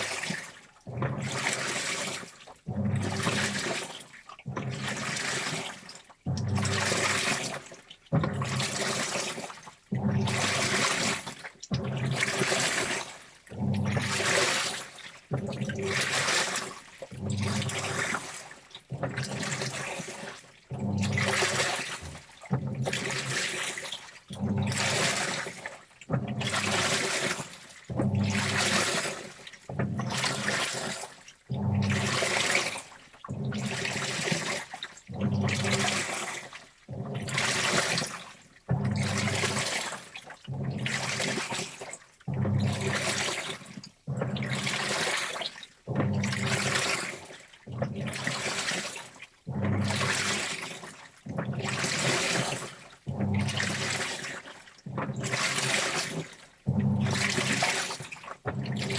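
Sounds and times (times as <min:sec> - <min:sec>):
water sloshing: 0:00.0 - 0:58.9
washing machine drum turning: 0:00.9 - 0:01.9, 0:06.3 - 0:07.5, 0:08.1 - 0:09.2, 0:10.0 - 0:10.9, 0:13.6 - 0:14.7, 0:17.1 - 0:18.3, 0:18.9 - 0:23.7, 0:27.9 - 0:29.1, 0:31.5 - 0:34.2, 0:38.7 - 0:39.8, 0:40.5 - 0:41.6, 0:42.3 - 0:43.4, 0:44.1 - 0:45.0, 0:45.9 - 0:47.0, 0:49.5 - 0:50.6, 0:51.3 - 0:54.1, 0:56.7 - 0:57.9, 0:58.5 - 0:58.9.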